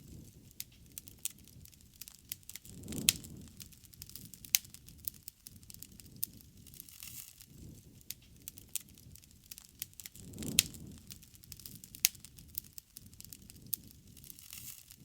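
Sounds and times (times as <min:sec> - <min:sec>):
low rumbling flutter of flames: 0:00.0 - 0:15.0
wood fire crackling and popping: 0:00.0 - 0:15.0.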